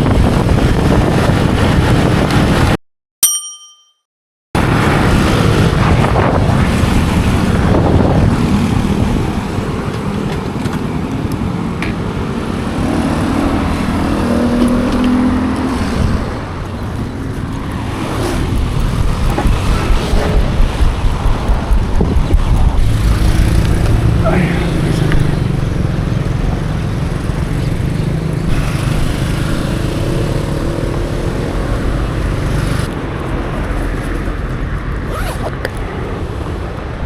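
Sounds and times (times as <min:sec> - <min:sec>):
motorbike engine and road rumble: 0:00.0 - 0:02.8, 0:04.6 - 0:37.0
wind buffeting on microphone: 0:00.0 - 0:02.8, 0:04.6 - 0:37.0.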